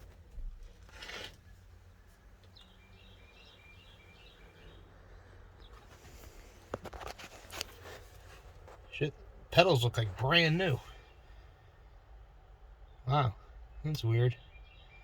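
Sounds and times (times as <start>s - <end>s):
faint bird chirping: 1.4s - 6.7s, 10.3s - 15.0s
soft rustles: 5.6s - 9.0s.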